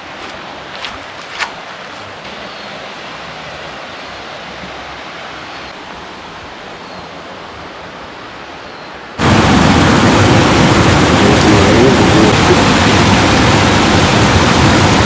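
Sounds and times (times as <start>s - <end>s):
flowing water rushing: 0.0s - 15.0s
loud rushing noise: 9.2s - 15.0s.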